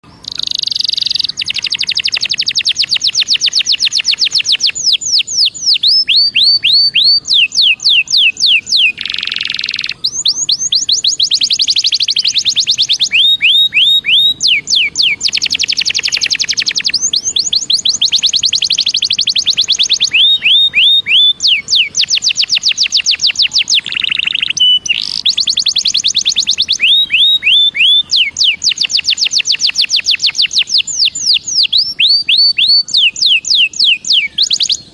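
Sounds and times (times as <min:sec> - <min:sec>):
canary singing: 0:00.0 - 0:34.9.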